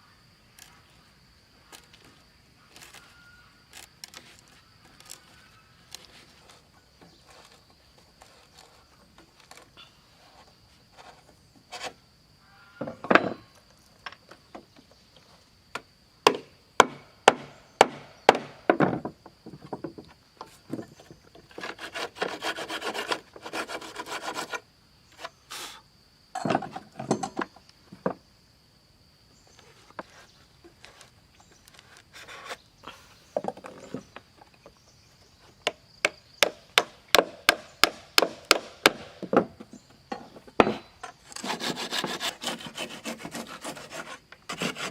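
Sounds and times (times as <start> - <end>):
rapid scraping on wood: 4.0 - 12.0, 20.7 - 24.6, 40.7 - 44.9.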